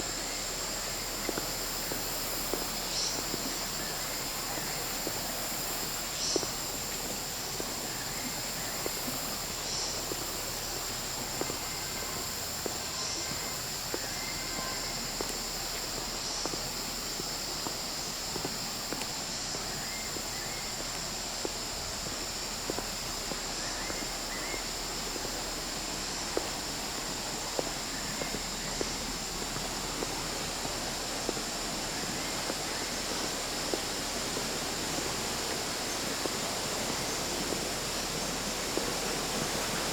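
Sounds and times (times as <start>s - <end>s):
insect drone: 0.0s - 39.9s
faint ticks: 15.2s - 23.0s.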